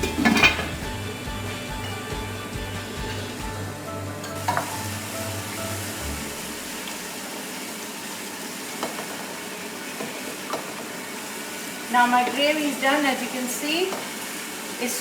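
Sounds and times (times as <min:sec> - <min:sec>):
utensil clinking against pot: 0:00.0 - 0:00.9
gravy sizzling in oil: 0:00.7 - 0:15.0.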